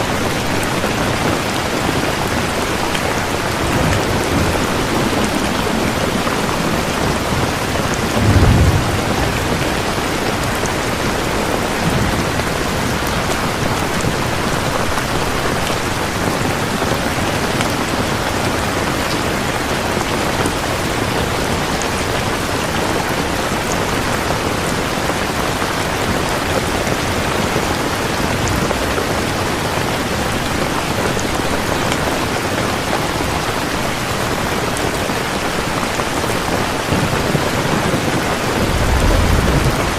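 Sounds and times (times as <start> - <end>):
heavy rain falling: 0.0 - 39.9
low rumble: 3.5 - 11.0, 38.4 - 39.9.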